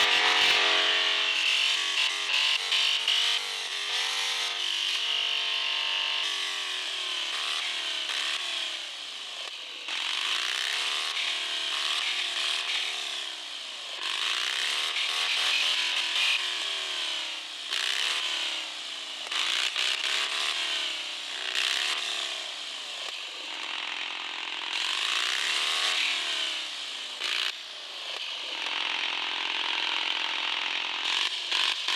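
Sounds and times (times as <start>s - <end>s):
gritty rasping noise: 0.0s - 0.7s
electric motor whining: 0.0s - 0.8s.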